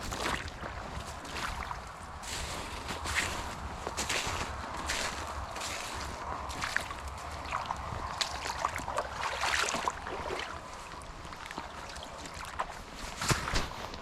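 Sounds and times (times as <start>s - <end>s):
boots crunching through snow: 0.0s - 6.8s, 13.0s - 14.0s.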